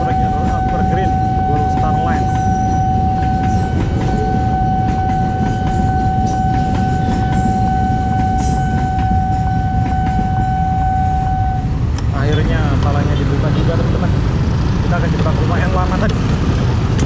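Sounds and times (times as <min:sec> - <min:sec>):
wheels clicking on rail joints: 0:00.0 - 0:10.8, 0:11.9 - 0:17.0
steady high-pitched tone: 0:00.0 - 0:11.8
train rumble: 0:00.0 - 0:17.0.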